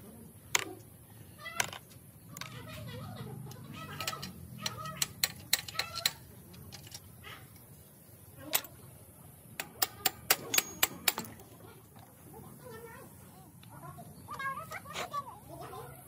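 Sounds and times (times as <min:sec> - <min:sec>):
hand tools tapping on parts: 0:01.6 - 0:02.7, 0:03.5 - 0:07.7, 0:08.5 - 0:08.8, 0:09.6 - 0:11.4.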